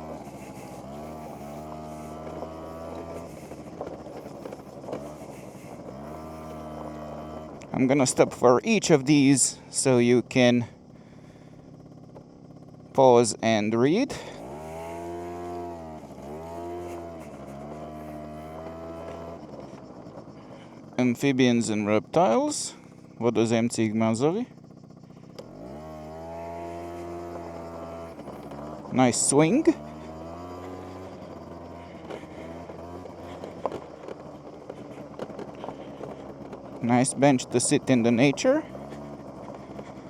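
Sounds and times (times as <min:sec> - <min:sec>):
scooter engine idling: 0:00.0 - 0:40.0.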